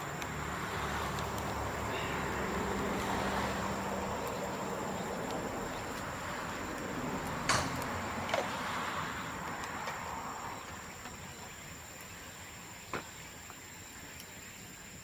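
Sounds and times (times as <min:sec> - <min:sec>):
bonfire burning with rushing noise: 0:00.0 - 0:15.0
sharp crack of bamboo: 0:07.2 - 0:08.6.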